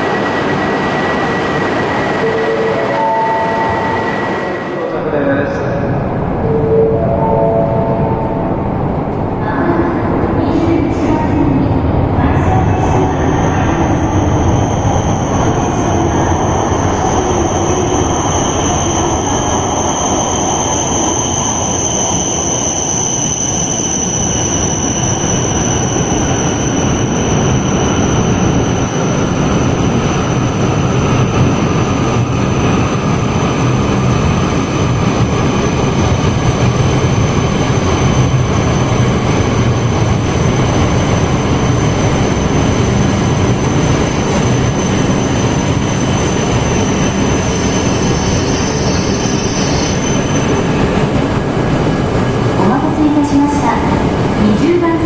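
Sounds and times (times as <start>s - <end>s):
lower whine: 0.0s - 9.4s
train rumble: 0.0s - 55.0s.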